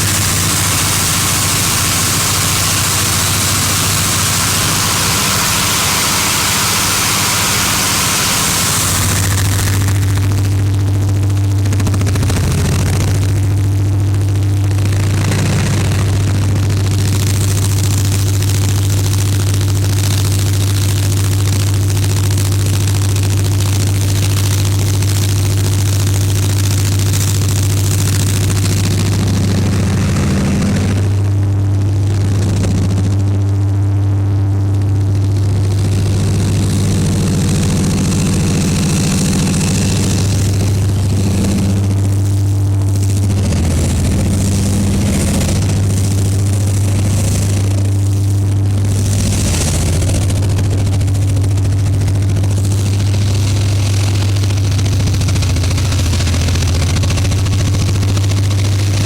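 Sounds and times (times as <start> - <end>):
locomotive diesel engine humming: 0.0 - 10.5.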